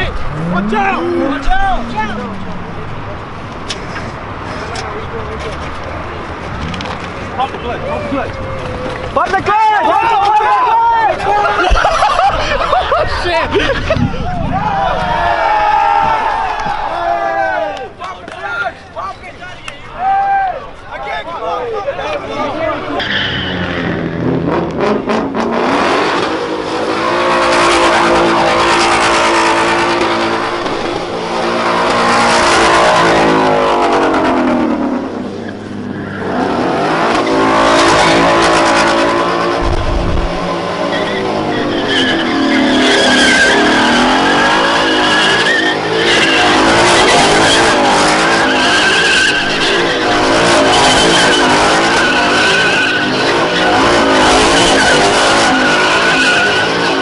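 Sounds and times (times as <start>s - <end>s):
car engine revving hard: 0.0s - 2.9s, 23.0s - 57.0s
tyres squealing: 35.8s - 57.0s.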